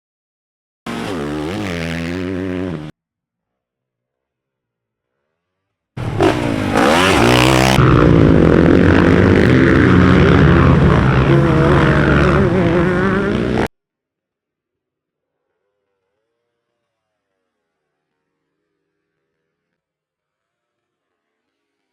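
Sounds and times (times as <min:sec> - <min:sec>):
dirt bike engine running hard: 0:06.0 - 0:13.7.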